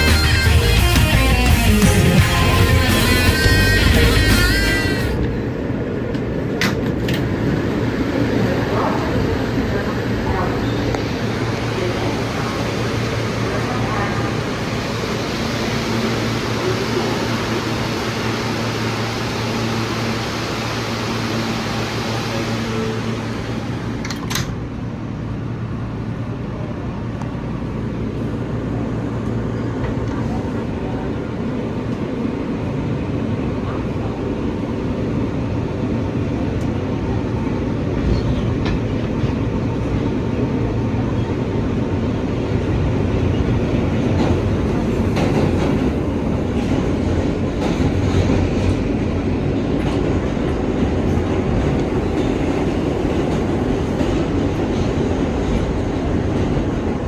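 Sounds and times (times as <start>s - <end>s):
subway train wheels rumbling on rail: 0.0s - 57.0s
short clicks from rails: 6.1s - 7.3s, 24.0s - 24.6s.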